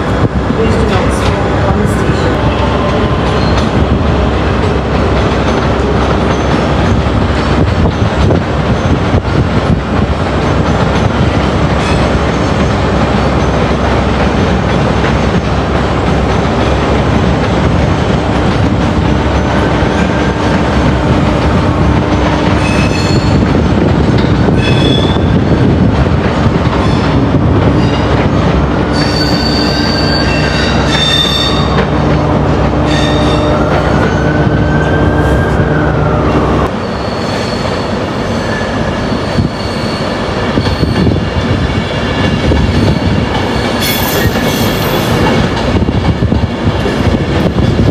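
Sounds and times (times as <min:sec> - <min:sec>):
train rumble: 0:00.0 - 0:47.9
train wheels squealing: 0:28.9 - 0:31.8, 0:36.8 - 0:41.2, 0:42.7 - 0:45.2.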